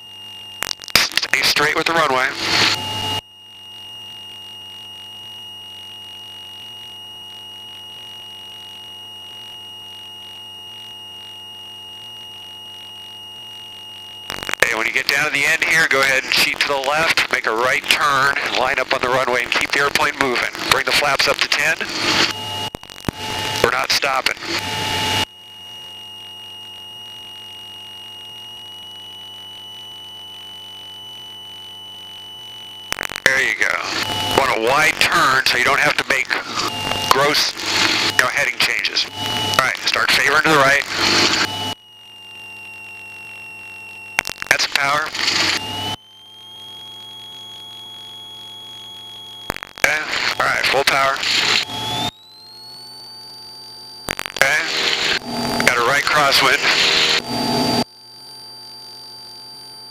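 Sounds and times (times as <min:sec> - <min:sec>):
high-pitched electrical whine: 0:00.0 - 0:59.9
low hum: 0:31.2 - 0:57.9.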